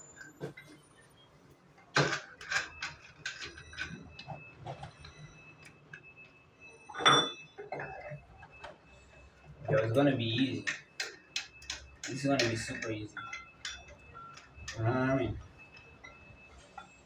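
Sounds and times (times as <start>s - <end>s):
weight clanking and ringing: 6.8s - 8.2s, 9.7s - 16.2s
metal gym weights clinking: 6.9s - 8.1s.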